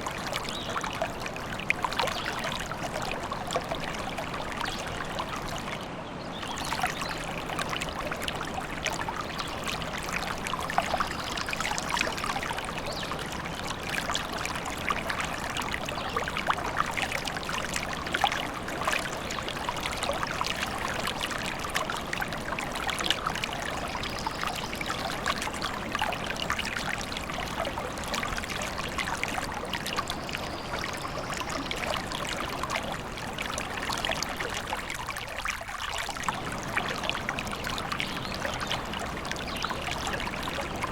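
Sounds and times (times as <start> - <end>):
stream babbling: 0.0 - 40.9.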